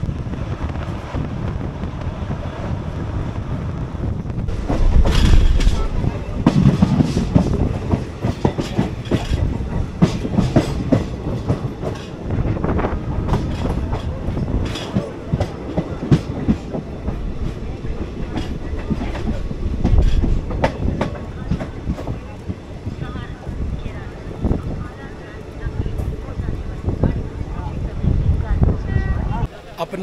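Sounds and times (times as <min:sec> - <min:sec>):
train low rumble: 0:00.0 - 0:30.0
train wheels clattering over rail joints: 0:04.5 - 0:27.3.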